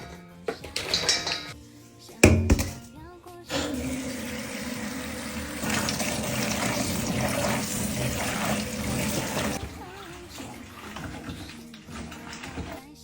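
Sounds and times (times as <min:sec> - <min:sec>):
tap water running: 0:00.0 - 0:01.6, 0:02.2 - 0:02.9, 0:03.5 - 0:13.0
peanuts being washed: 0:00.5 - 0:01.6, 0:03.5 - 0:13.0.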